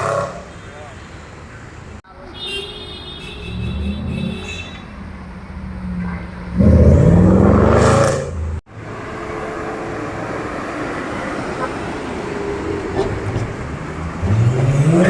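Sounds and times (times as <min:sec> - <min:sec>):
car engine revving: 0:05.6 - 0:15.0.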